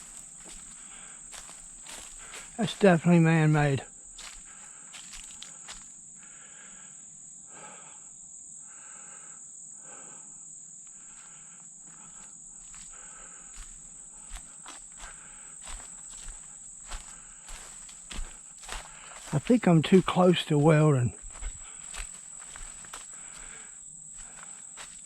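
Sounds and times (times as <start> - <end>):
footsteps: 0.0 - 5.9, 12.6 - 25.0
insects droning: 0.0 - 25.0
low pulsing insect chirp: 0.0 - 25.0.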